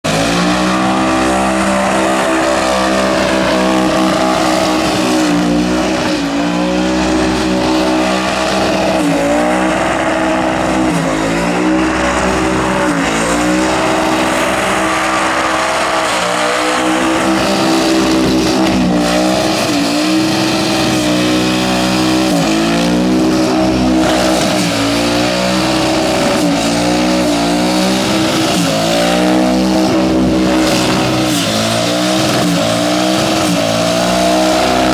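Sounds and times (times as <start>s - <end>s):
car engine revving hard: 0.0s - 34.9s
tyres spinning and squealing: 0.0s - 34.9s.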